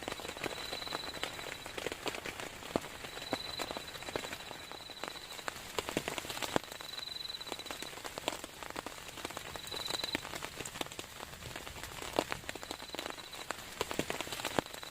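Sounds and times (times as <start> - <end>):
heavy rain falling: 0.0 - 14.9.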